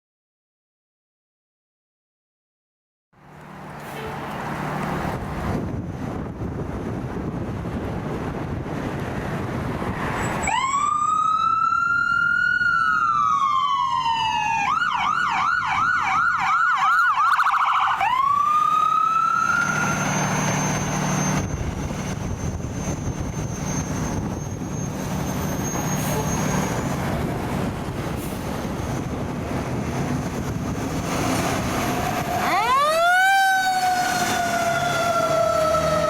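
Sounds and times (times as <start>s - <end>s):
vehicle engine rumbling: 3.2s - 10.5s, 18.0s - 36.0s
road noise: 3.2s - 36.0s
emergency siren wailing and yelping: 10.4s - 26.8s, 31.8s - 36.0s.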